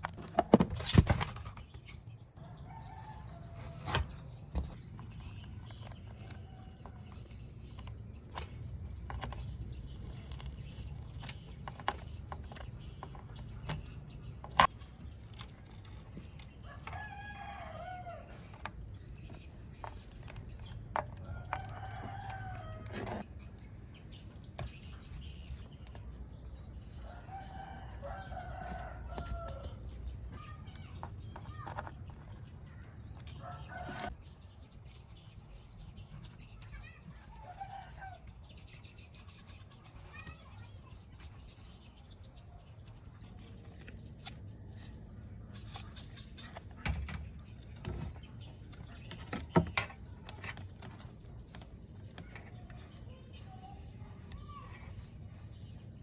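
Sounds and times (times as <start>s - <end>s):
rooster crowing: 27.1s - 29.8s.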